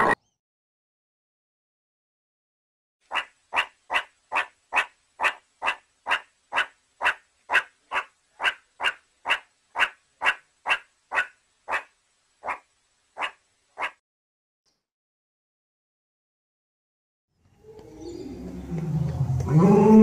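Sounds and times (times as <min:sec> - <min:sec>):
meerkat sharp calls: 0:03.1 - 0:14.0.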